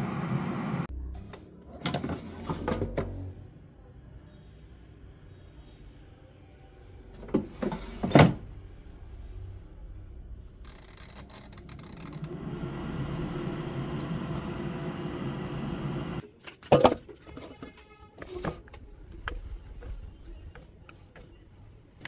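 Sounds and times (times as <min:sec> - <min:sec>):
machine humming: 0:00.0 - 0:00.9, 0:12.3 - 0:16.2.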